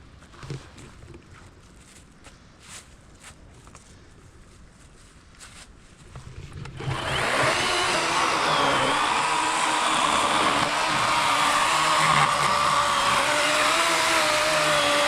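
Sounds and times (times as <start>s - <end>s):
electric chainsaw cutting log: 6.6s - 15.0s.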